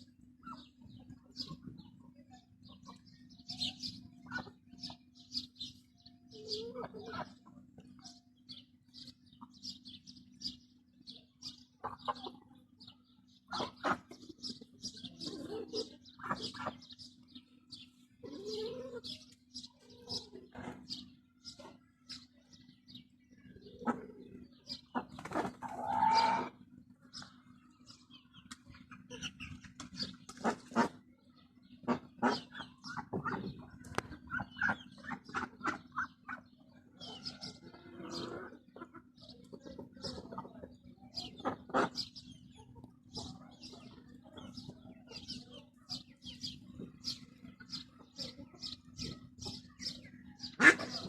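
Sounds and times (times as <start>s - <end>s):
chickens clucking: 0.0s - 51.0s
chicken squawk: 13.5s - 14.2s, 24.9s - 26.6s, 50.4s - 51.0s.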